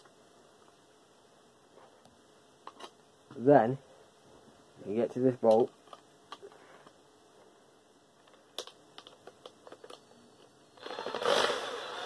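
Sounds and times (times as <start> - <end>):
power tool motor whining: 10.8 - 12.0.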